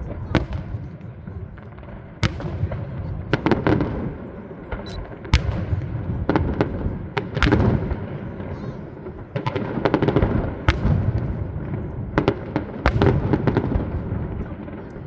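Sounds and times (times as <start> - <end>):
fireworks bangs and cracks: 0.0 - 15.0
low rumble of explosions: 0.0 - 15.0.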